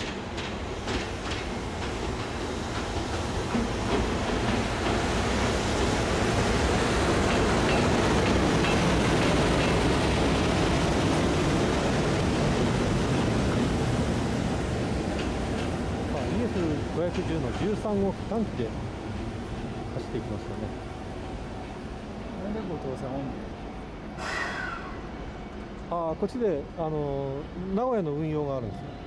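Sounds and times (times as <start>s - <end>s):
train wheels clacking over rail joints: 0.0s - 11.6s, 15.1s - 18.7s
rolling rumble of freight wagons: 0.0s - 29.0s.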